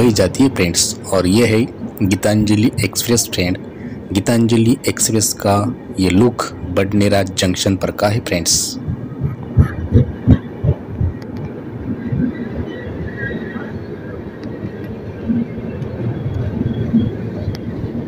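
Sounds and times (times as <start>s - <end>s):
train low rumble: 0.0s - 18.0s
low thumps: 8.8s - 12.3s.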